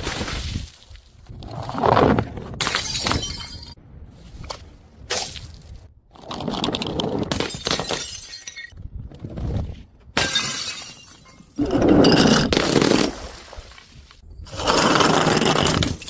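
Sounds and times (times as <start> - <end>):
glass bottles shattering: 2.7 - 3.8, 7.3 - 8.8, 10.2 - 12.3.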